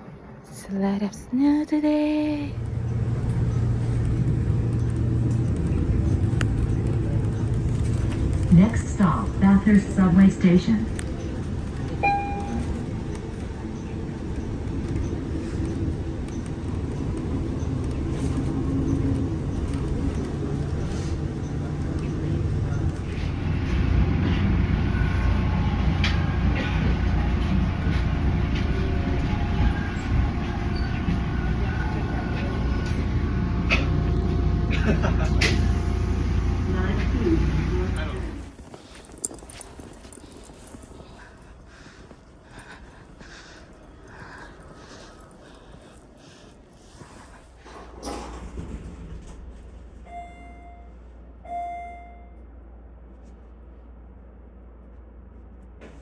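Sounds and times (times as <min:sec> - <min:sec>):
transit vehicle rumble: 0:00.0 - 0:56.0.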